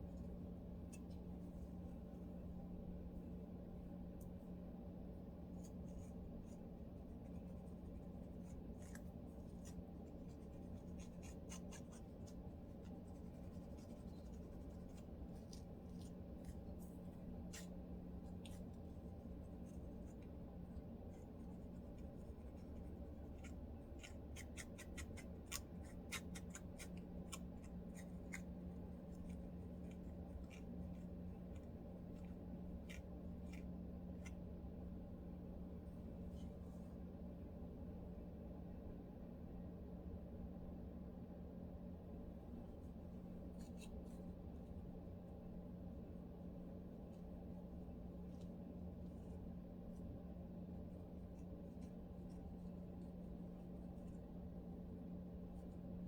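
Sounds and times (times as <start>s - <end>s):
steady low hum: 0.0s - 56.0s
comb scratching scalp: 5.6s - 34.4s.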